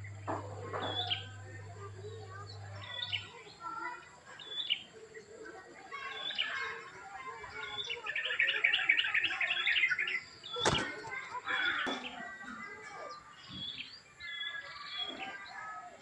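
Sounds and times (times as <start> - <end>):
small birds chirping and twittering: 0.0 - 16.0.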